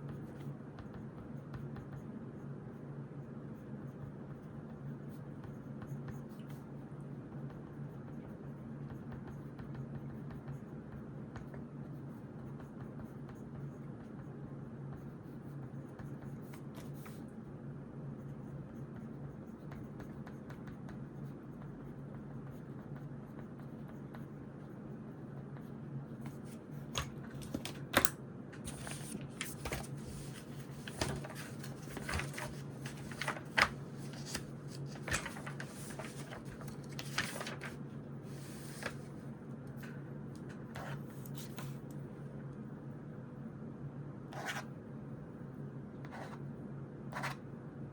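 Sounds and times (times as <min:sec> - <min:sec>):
low room hum: 0:00.0 - 0:47.9
notebook pages rustling: 0:26.4 - 0:39.2
pen scratching on paper: 0:40.7 - 0:41.8, 0:44.3 - 0:44.7, 0:46.0 - 0:46.4, 0:47.1 - 0:47.4.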